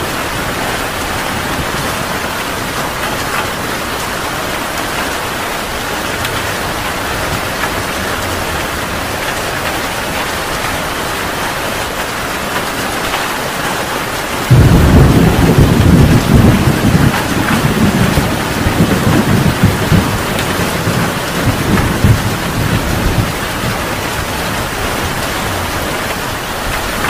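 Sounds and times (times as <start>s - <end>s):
heavy rain pouring: 0.0s - 27.0s
thunder clap rumbling: 14.5s - 27.0s.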